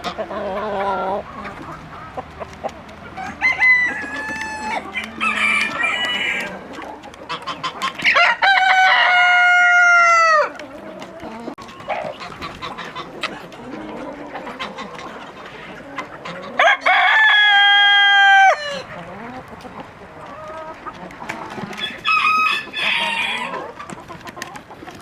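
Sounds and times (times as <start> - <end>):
hens clucking: 0.0 - 25.0
rooster crowing: 3.2 - 6.5, 8.1 - 10.5, 16.6 - 18.9, 21.8 - 23.6.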